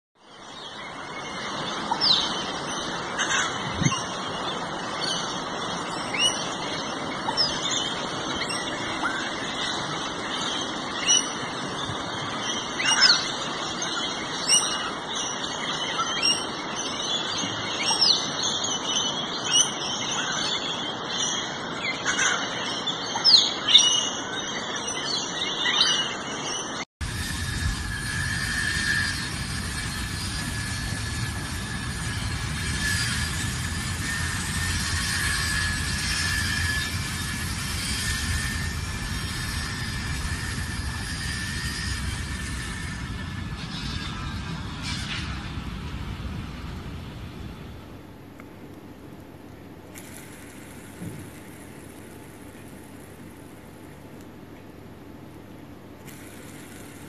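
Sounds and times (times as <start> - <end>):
falling whistles: 27.1 - 45.6.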